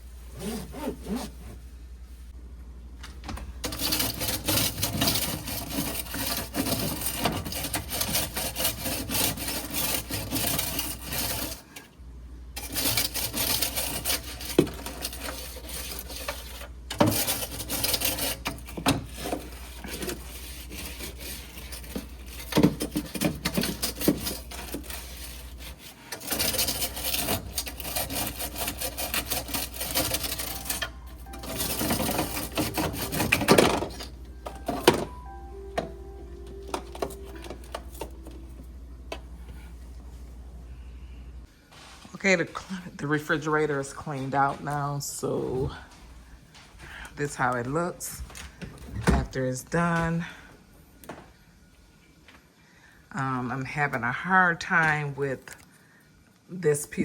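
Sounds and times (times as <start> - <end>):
scrubbing fridge shelves: 3.5 - 11.9, 12.6 - 36.0.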